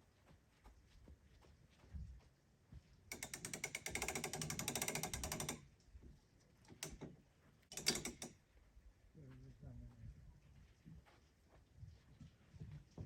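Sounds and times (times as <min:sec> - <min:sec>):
mechanical ratchet clicking: 0:03.1 - 0:05.6, 0:06.8 - 0:07.0, 0:07.7 - 0:08.4.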